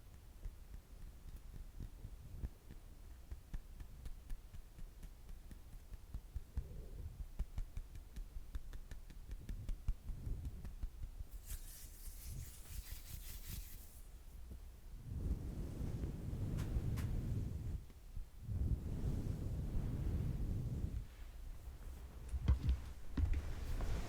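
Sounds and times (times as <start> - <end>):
scratchy rubbing: 11.3 - 14.4
soft tapping thuds: 21.8 - 24.0.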